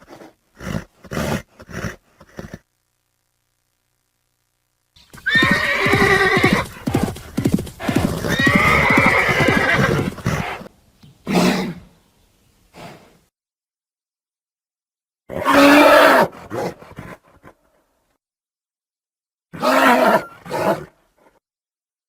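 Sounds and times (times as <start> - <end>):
horse neighing: 5.1 - 10.7, 15.3 - 16.3, 19.6 - 20.9.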